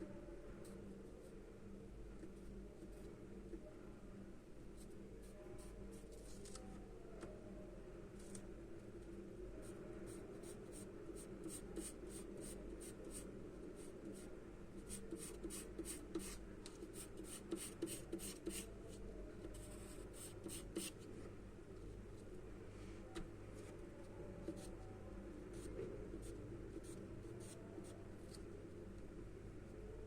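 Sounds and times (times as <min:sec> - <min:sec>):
charcoal scratching on paper: 0:14.9 - 0:18.7, 0:19.5 - 0:21.0, 0:25.5 - 0:28.4.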